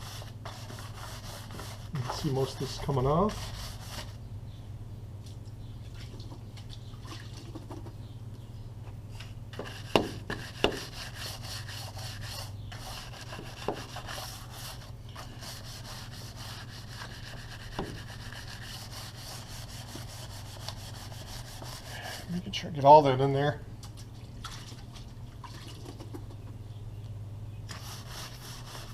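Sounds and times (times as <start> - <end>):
scrub brush scrubbing a track: 0.0 - 4.2, 9.6 - 22.4, 27.7 - 28.9.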